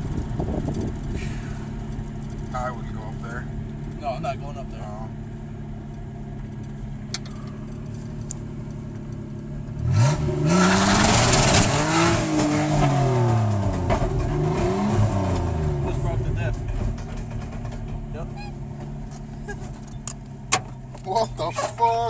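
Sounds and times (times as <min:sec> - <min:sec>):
pickup engine revving: 0:00.0 - 0:21.5
tires spinning and sliding: 0:09.8 - 0:18.3.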